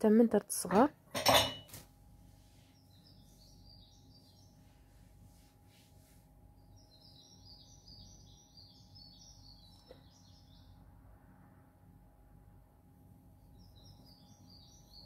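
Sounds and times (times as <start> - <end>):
steady low hum: 0.0 - 15.0
small birds twittering: 2.6 - 5.0, 6.5 - 10.8, 13.4 - 15.0.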